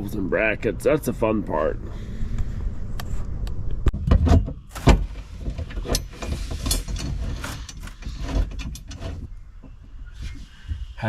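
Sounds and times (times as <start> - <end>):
metal hardware knocking and rattling: 3.9 - 9.3.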